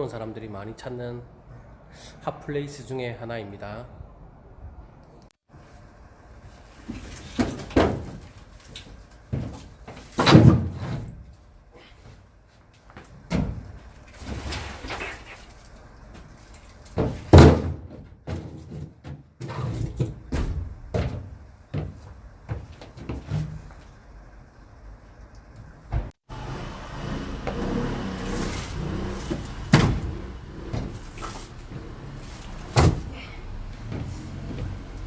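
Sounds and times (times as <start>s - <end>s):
firewood knocks and thumps: 6.8s - 11.3s, 16.2s - 23.6s, 28.2s - 35.0s
vehicle door sounds: 27.4s - 35.0s.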